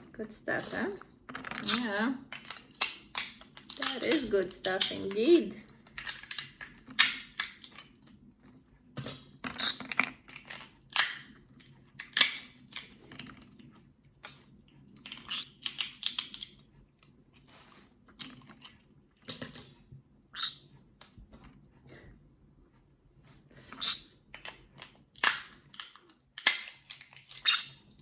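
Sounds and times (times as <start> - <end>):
beak crunching walnut shell: 1.4 - 7.8, 9.6 - 12.9, 15.1 - 16.6, 25.1 - 27.8.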